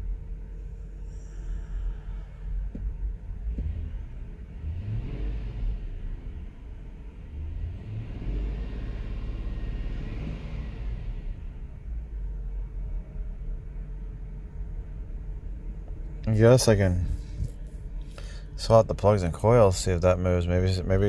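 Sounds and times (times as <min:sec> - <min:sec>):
car engine misfiring and revving: 0:03.4 - 0:12.2.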